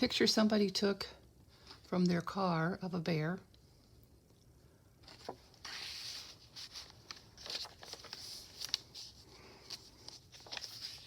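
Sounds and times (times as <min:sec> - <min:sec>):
paper crinkling: 0:05.0 - 0:11.0
paper pages rustling: 0:05.0 - 0:11.0.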